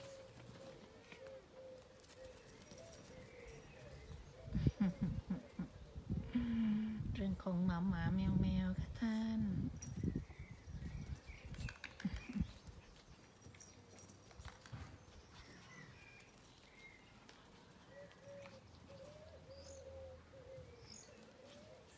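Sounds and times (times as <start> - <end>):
birds chirping: 0.0 - 6.5, 9.8 - 21.9
dove cooing: 0.0 - 6.6, 17.9 - 21.9.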